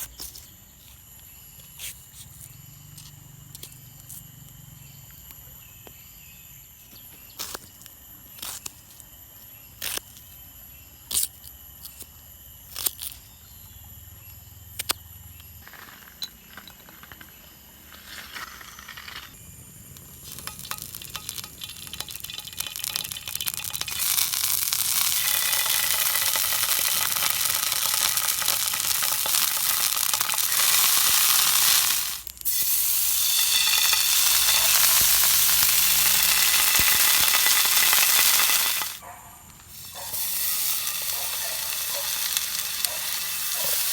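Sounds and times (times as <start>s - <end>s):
sharp clicks and knocks: 20.0s - 32.4s
food sizzling in hot oil: 20.0s - 39.0s, 39.6s - 43.9s.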